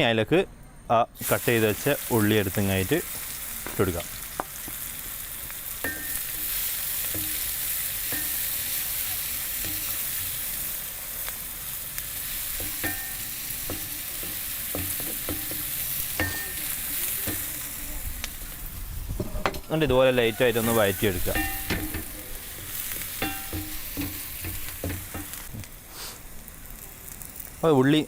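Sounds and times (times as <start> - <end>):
onions sizzling in pan: 1.2 - 28.0
spoon stirring and knocking pan: 5.8 - 10.7, 12.3 - 17.8, 20.6 - 25.5.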